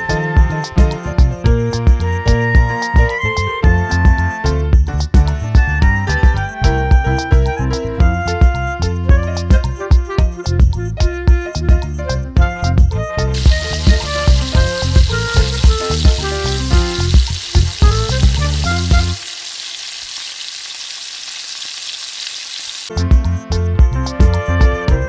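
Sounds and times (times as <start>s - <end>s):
background music with a beat: 0.0s - 19.2s, 22.9s - 25.0s
chicken frying in hot oil: 13.4s - 23.0s.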